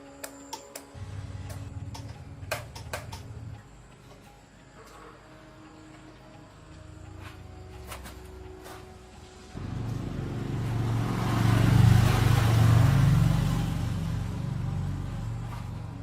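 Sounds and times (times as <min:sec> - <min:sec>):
motorcycle engine running: 0:09.6 - 0:16.0.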